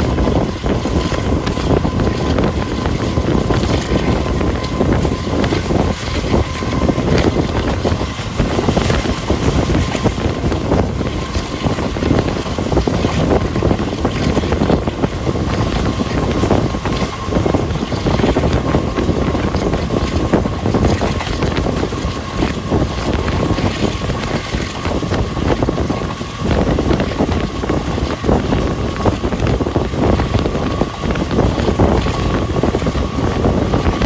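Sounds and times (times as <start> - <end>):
moving train rumble: 0.0 - 34.0
wind buffeting microphone: 0.0 - 34.0.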